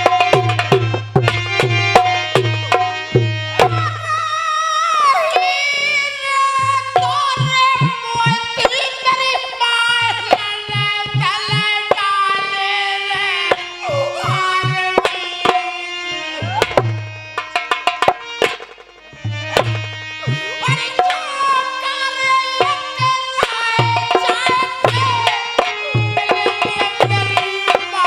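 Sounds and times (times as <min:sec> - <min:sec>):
person singing folk melody: 0:03.7 - 0:17.1, 0:20.1 - 0:28.0.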